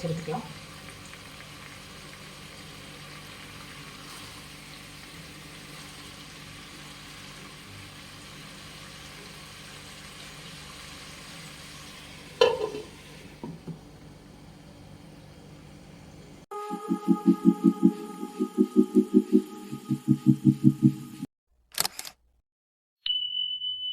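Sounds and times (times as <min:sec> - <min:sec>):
chicken sizzling in a pan: 0:00.0 - 0:15.6.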